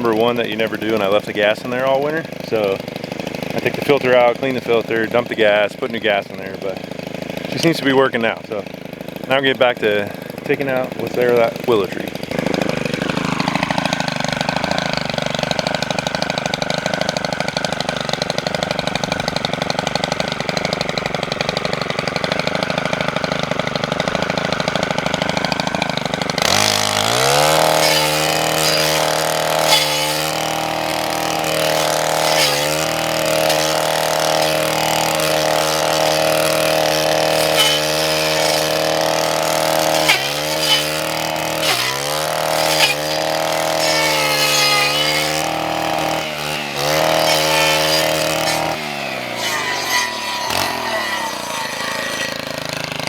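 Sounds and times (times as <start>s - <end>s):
string trimmer engine revving: 0.0s - 53.0s.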